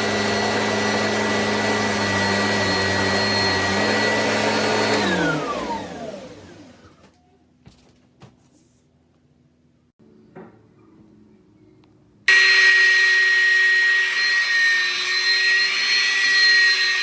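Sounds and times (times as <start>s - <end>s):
motor winding down: 0.0s - 6.9s
vacuum cleaner whining: 0.0s - 7.2s, 12.3s - 17.0s.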